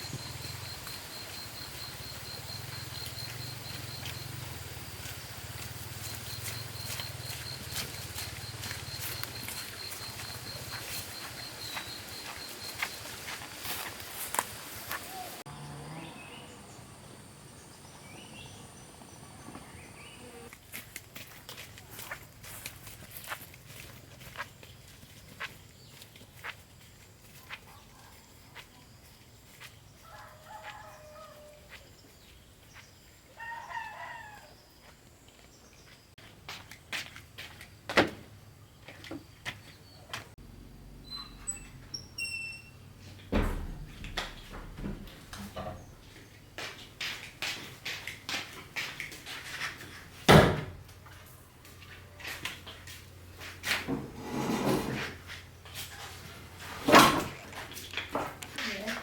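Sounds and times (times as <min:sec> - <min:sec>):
rooster crowing: 0:30.0 - 0:31.8, 0:33.4 - 0:34.6.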